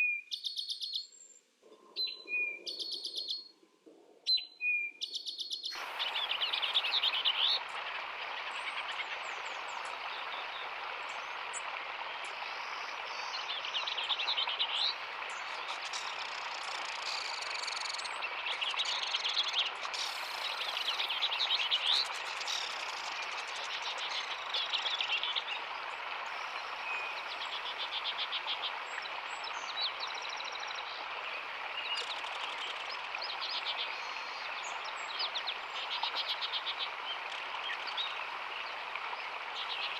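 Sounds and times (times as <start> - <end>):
dense background hiss: 5.7 - 39.9
birds chirping and calling: 14.0 - 25.4.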